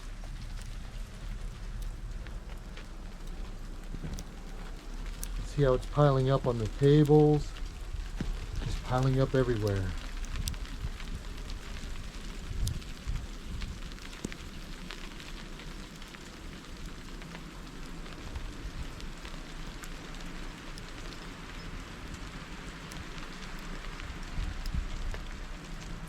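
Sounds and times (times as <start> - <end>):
low rumble: 0.0 - 14.6
icy snow pattering: 0.0 - 26.0.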